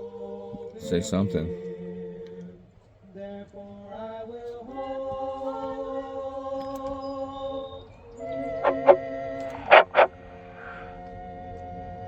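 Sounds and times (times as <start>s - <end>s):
man chanting in held notes: 0.8s - 1.6s.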